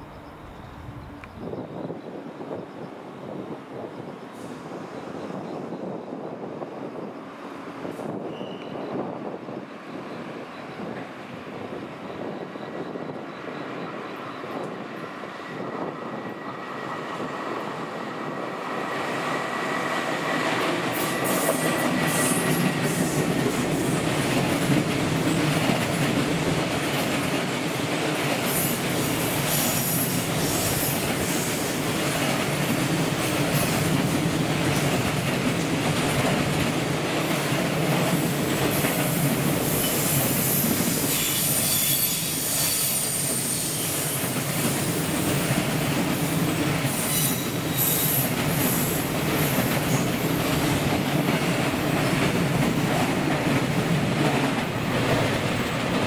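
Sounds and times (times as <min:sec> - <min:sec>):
freight train wheels clattering: 0:12.2 - 0:56.0.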